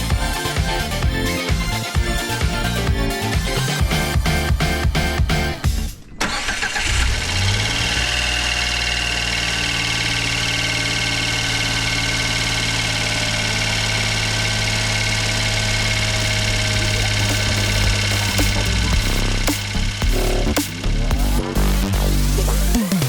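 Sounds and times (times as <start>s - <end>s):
engine cranking and idling: 0.0s - 23.0s.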